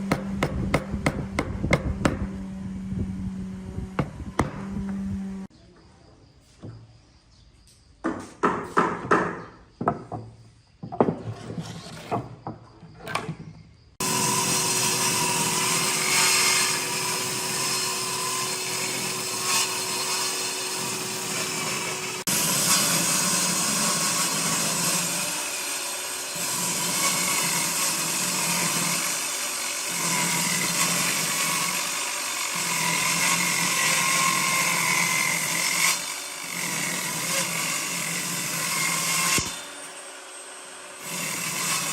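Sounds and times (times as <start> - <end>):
sharp knocks: 0.0 - 2.3, 4.0 - 5.0, 8.0 - 11.3
electric power tool on wood: 0.0 - 5.5, 14.0 - 41.9.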